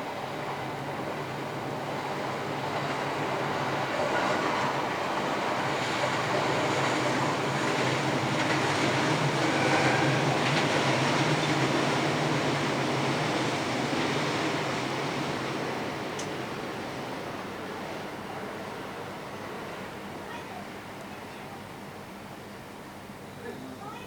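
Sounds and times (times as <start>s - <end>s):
train passing: 0.0s - 24.0s.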